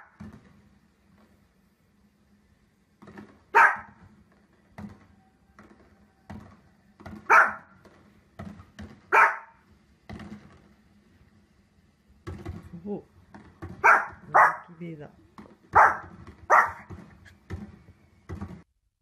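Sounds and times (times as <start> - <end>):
fireworks thuds and pops on television: 0.0 - 1.5, 2.9 - 14.4, 15.2 - 18.7
small dog barking: 3.5 - 4.0, 7.2 - 7.8, 9.1 - 9.6, 13.8 - 14.8, 15.7 - 16.9.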